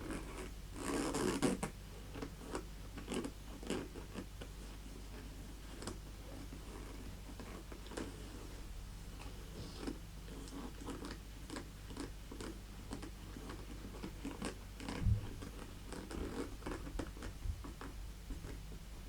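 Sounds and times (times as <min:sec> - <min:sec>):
heavy low thump: 0:15.0 - 0:15.4.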